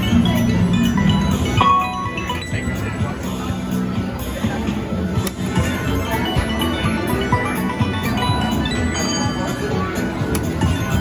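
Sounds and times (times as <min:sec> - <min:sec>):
slot machine electronic chimes: 0:00.0 - 0:03.8, 0:05.5 - 0:11.0
casino din: 0:00.1 - 0:03.2.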